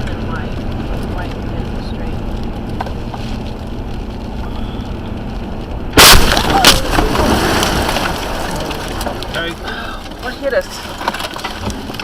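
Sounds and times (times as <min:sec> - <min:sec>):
road noise inside moving car: 0:00.0 - 0:12.0
rough rushing noise: 0:02.9 - 0:09.9
car crash bang: 0:05.9 - 0:09.6
sharp bang: 0:06.0 - 0:08.0.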